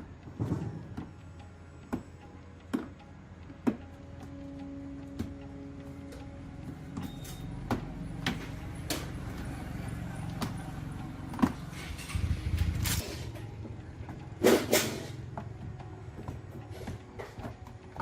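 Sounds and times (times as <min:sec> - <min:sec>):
metal fan parts knocking: 0:05.0 - 0:18.0
ringing metal clanks: 0:06.9 - 0:09.4, 0:10.0 - 0:15.4.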